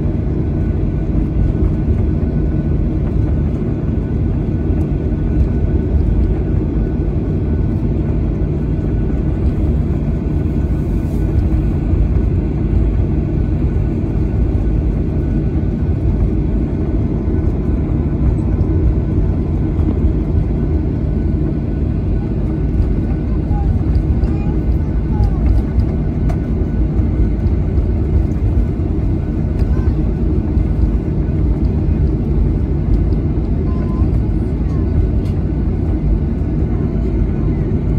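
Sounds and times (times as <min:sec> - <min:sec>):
airliner engine and airflow rumble: 0:00.0 - 0:37.9.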